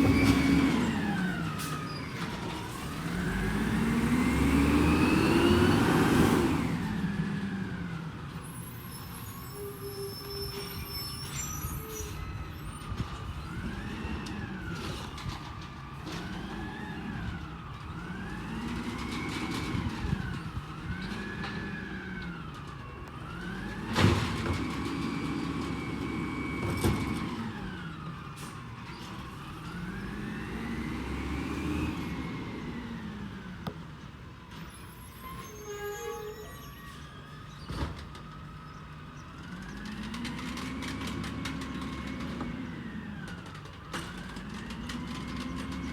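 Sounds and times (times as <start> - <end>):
garbage truck engine revving: 0.0 - 8.6, 16.2 - 34.4, 39.0 - 45.9.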